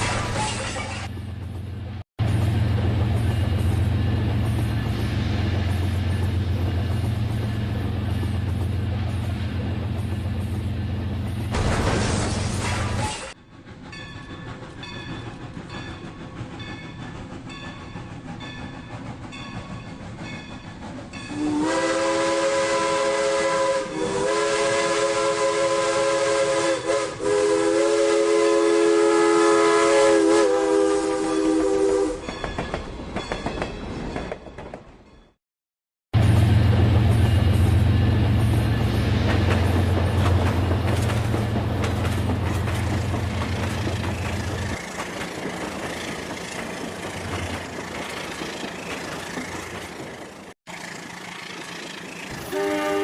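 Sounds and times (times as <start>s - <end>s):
electronic train horn: 21.3s - 32.2s, 52.3s - 53.0s.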